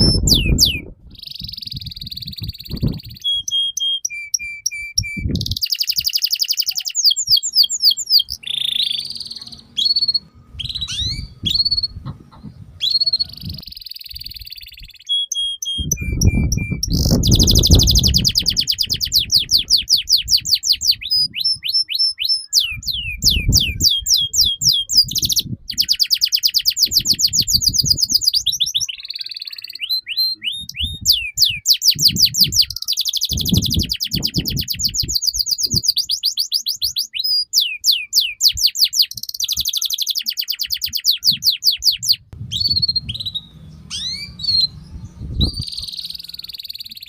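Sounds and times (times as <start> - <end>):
canary singing trills: 0.0 - 47.0
low rumble: 42.4 - 46.4.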